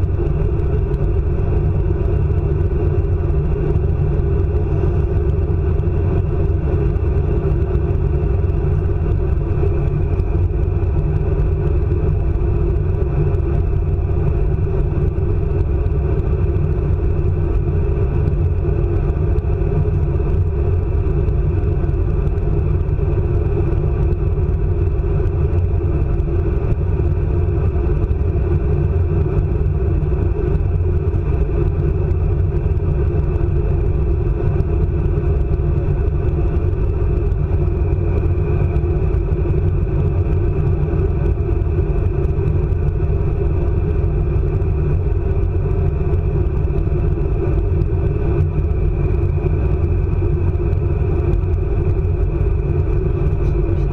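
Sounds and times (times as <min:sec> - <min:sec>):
high-speed train rumble: 0:00.0 - 0:53.9.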